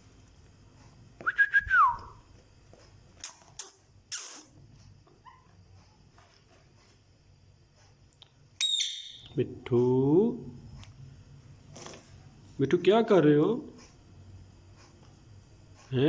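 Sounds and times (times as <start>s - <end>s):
parrot harsh noises: 8.6s - 9.2s
parrot high-pitched call: 8.6s - 9.3s
parrot whistling: 8.6s - 9.3s.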